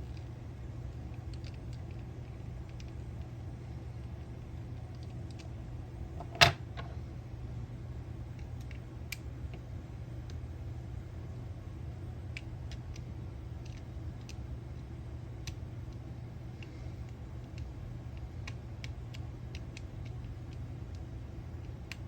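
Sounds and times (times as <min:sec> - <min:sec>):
steady low hum: 0:00.0 - 0:22.0
clicks of small reel parts: 0:12.3 - 0:14.4.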